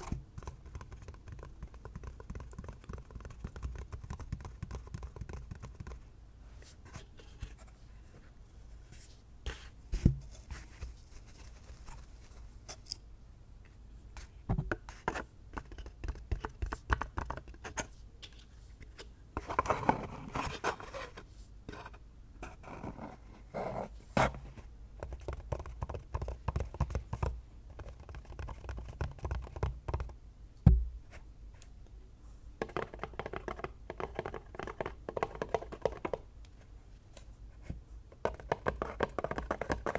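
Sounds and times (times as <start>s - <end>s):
fingertips tapping and scratching: 0.0s - 6.0s, 14.7s - 17.9s, 25.0s - 30.2s, 32.6s - 36.2s, 38.1s - 39.9s.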